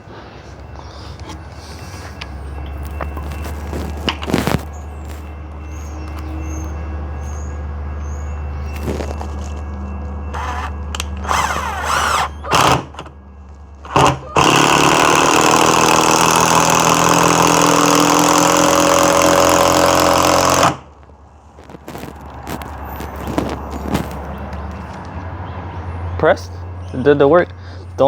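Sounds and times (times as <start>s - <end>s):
impact driver driving screw: 13.9s - 20.8s.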